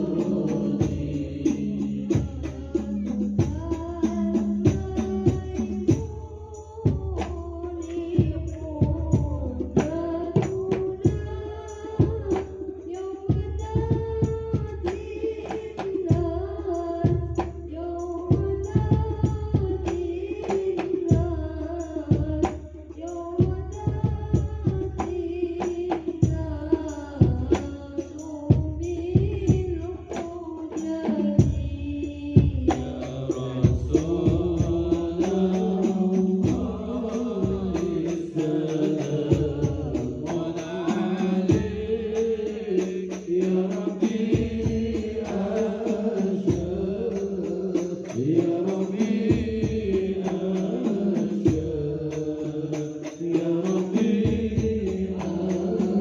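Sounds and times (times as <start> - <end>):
man singing a chant: 0.0 - 6.1, 31.5 - 56.0
drum strikes: 0.0 - 6.3, 32.4 - 56.0.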